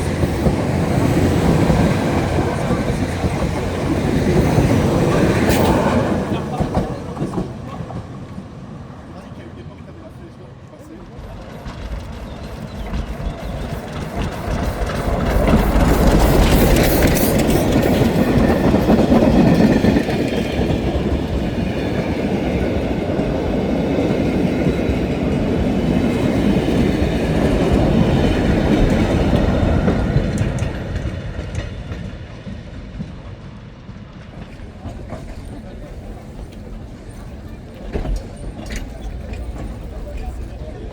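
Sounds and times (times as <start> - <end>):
train wheels clattering over rail joints: 10.9 - 33.4, 34.2 - 40.9.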